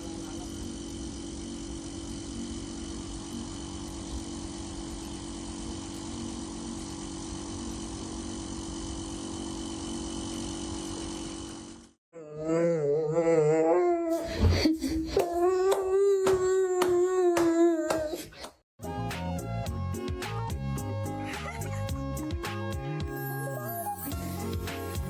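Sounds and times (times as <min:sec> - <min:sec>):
steady machine hum: 0:00.0 - 0:12.0
high wavering whimpering cry: 0:12.2 - 0:18.2.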